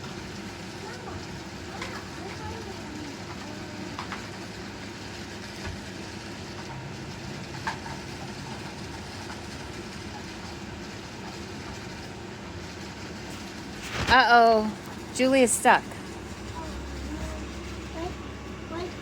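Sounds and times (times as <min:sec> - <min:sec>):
robot vacuums humming: 0:13.9 - 0:19.0.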